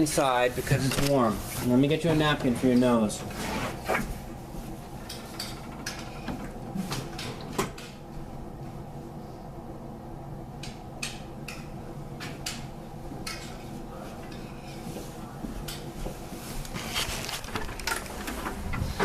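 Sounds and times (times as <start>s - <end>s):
rustling clatter: 16.4s - 19.0s.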